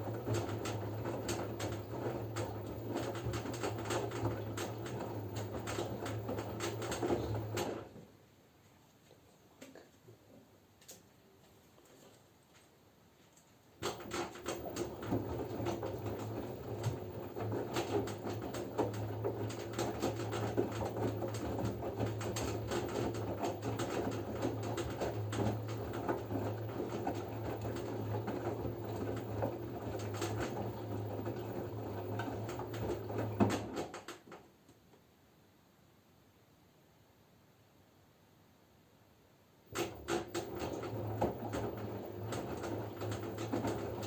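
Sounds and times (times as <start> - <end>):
washing machine motor hum: 0.0 - 8.0, 13.8 - 34.1, 39.7 - 44.0.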